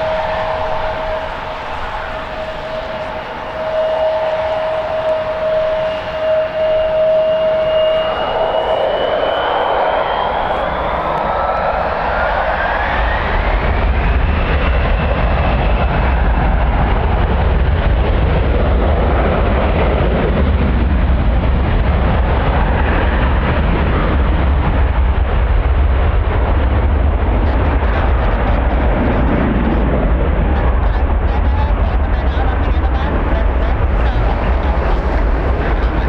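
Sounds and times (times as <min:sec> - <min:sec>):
rising whine: 0:00.0 - 0:15.8
jet engines: 0:00.0 - 0:36.0
wind buffeting microphone: 0:00.0 - 0:36.0.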